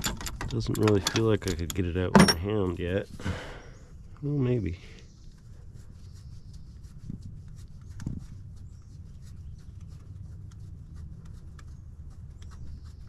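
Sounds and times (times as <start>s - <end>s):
hand tools clicking on metal: 0.0s - 2.5s
knocks: 2.2s - 2.5s.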